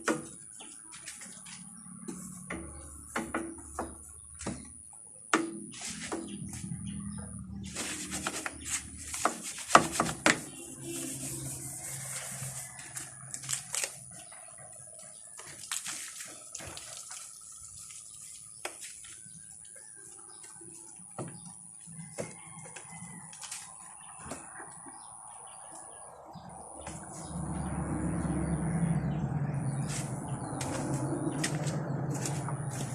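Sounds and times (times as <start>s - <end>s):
water splashing and dripping: 7.6s - 21.1s
thin high tone: 10.4s - 12.7s.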